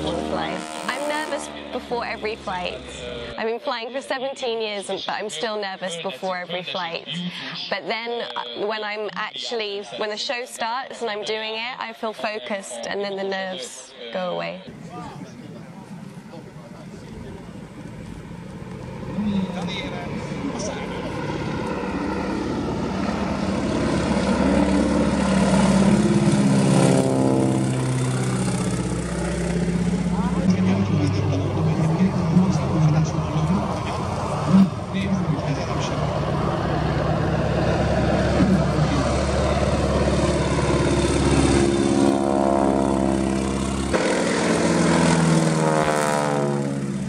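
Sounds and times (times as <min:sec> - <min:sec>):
biplane engine and propeller: 0:00.0 - 0:10.2, 0:14.7 - 0:47.0.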